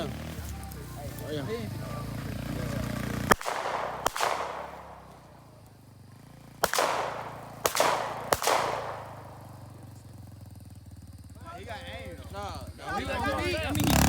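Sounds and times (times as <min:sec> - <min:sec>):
atv engine hum: 0:00.0 - 0:14.0
handgun shots with echo: 0:03.3 - 0:05.4, 0:06.6 - 0:09.7.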